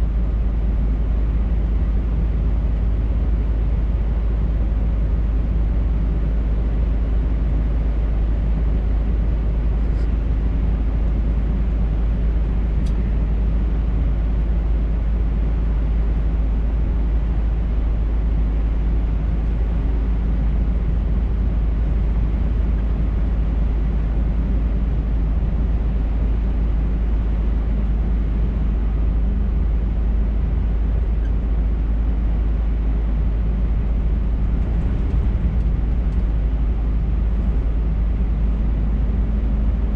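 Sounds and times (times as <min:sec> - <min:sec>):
road noise: 0:00.0 - 0:39.9
truck diesel engine drone: 0:00.0 - 0:39.9.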